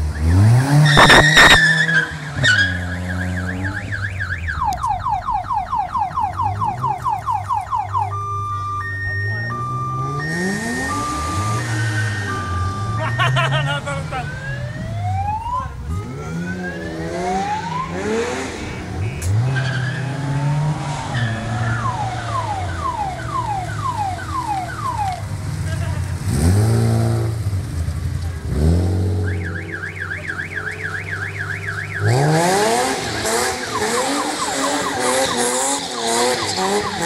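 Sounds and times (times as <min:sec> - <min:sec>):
car engines revving: 0:00.0 - 0:37.0
electronic alarm siren: 0:00.2 - 0:25.2, 0:29.3 - 0:37.0
tyres squealing: 0:18.6 - 0:25.1.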